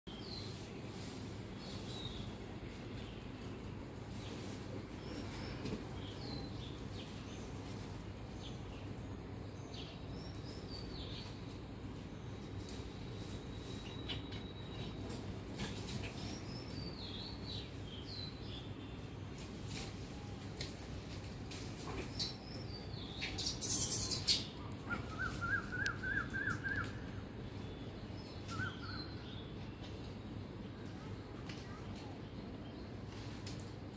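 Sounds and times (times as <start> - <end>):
bird chirping: 22.0 - 31.1
songbird whistling: 24.9 - 27.2, 28.4 - 29.2.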